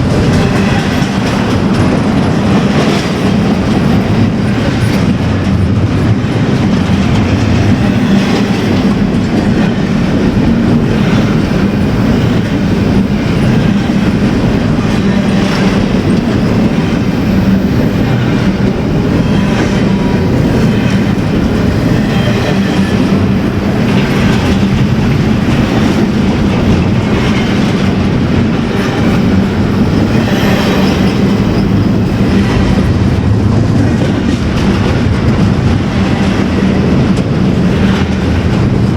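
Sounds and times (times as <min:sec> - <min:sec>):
train wheels rumbling on rails: 0:00.0 - 0:38.9
wheels clicking over rail joints: 0:00.0 - 0:38.9.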